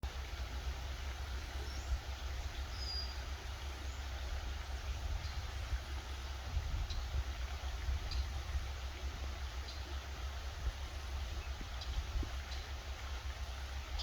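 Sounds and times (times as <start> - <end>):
faint hiss: 0.0 - 14.0
faint bird chirps: 1.5 - 4.1.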